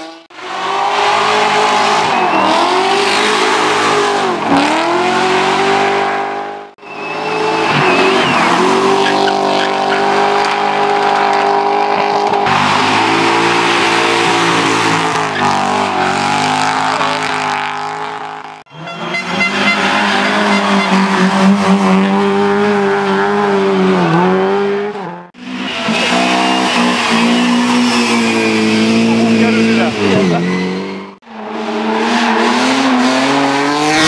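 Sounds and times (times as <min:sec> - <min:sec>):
car engines revving high: 0:00.0 - 0:34.0
tyre squeal: 0:06.8 - 0:11.1, 0:25.4 - 0:31.2.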